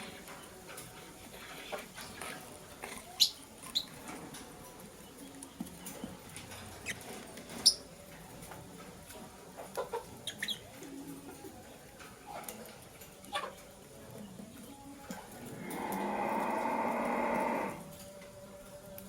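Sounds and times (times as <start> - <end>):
lovebirds chirping: 10.2 - 10.8.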